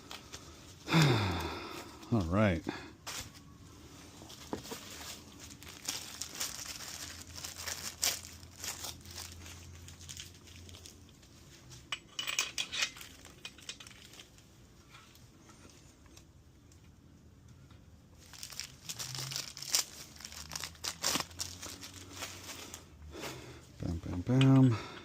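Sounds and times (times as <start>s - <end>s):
packaging rustling: 4.2s - 11.3s, 18.2s - 22.9s.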